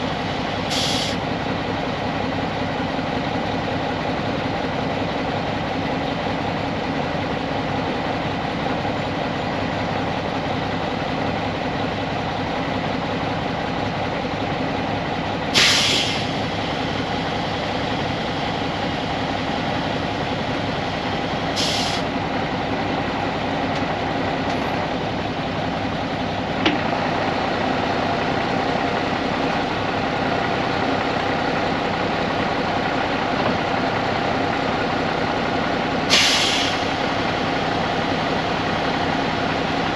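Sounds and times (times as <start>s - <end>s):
diesel truck engine running: 0.0s - 39.9s
air hiss bursts: 0.7s - 1.2s, 15.6s - 16.4s, 21.6s - 22.0s, 36.1s - 36.9s.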